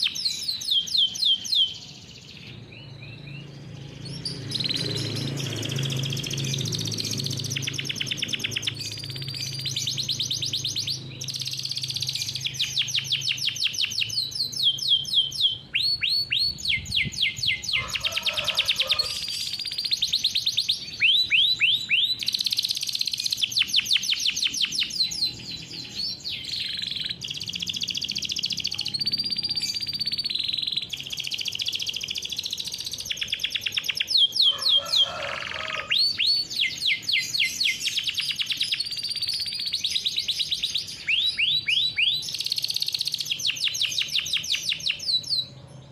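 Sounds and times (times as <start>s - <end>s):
canary singing trills: 0.0s - 45.9s.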